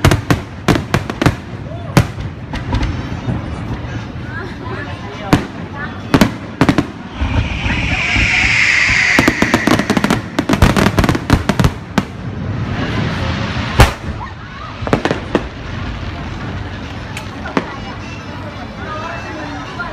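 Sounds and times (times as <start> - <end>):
firework bangs: 5.3 - 14.2
firework whistle: 6.5 - 11.8
crackling firework pops: 17.1 - 17.8.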